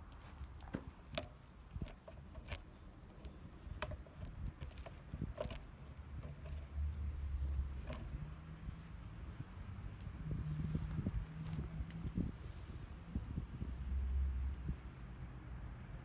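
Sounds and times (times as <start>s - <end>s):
sharp clicks and light knocks: 0.0s - 8.4s.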